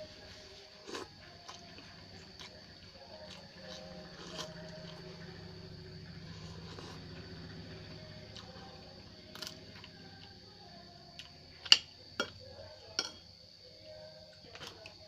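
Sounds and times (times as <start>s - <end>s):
cutlery clicking on a plate: 13.0s - 13.3s.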